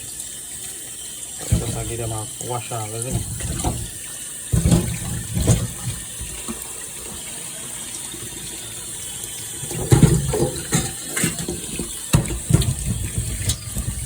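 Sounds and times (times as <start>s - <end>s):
kitchen tap running: 0.0s - 14.0s
knocks and splashes: 1.4s - 2.1s, 3.0s - 6.6s, 9.7s - 14.0s.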